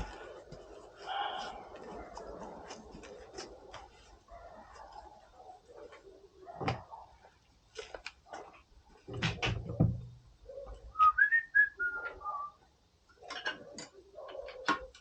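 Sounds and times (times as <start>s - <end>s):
clicks and knocks of metal parts: 13.1s - 15.0s.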